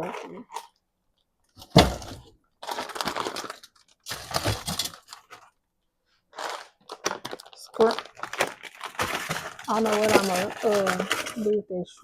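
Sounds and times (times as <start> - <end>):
plastic bags crinkling: 1.6 - 5.6, 6.3 - 11.6.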